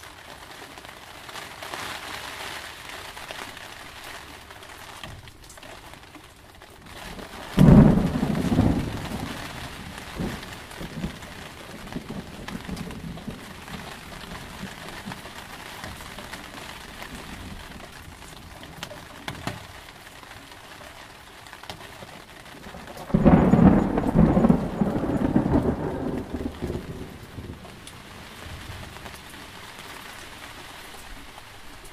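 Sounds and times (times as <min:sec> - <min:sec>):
steady rain falling: 0:00.0 - 0:31.9
loud thunderclap rumbling: 0:07.2 - 0:18.6, 0:22.6 - 0:29.6.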